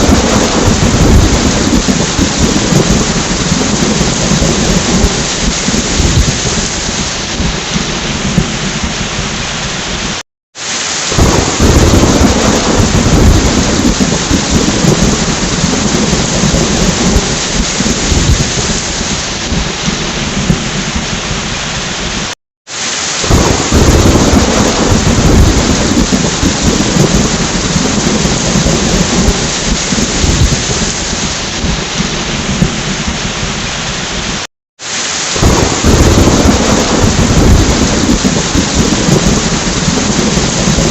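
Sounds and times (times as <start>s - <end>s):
low rolling thunder: 0.0s - 10.2s, 11.1s - 22.3s, 23.2s - 34.4s, 35.4s - 40.9s
heavy rain pouring: 0.0s - 40.9s.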